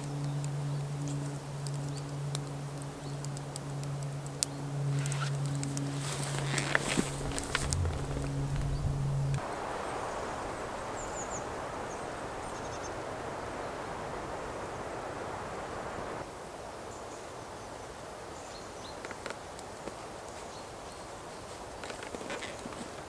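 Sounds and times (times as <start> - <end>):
steady rushing noise: 0.0 - 16.3.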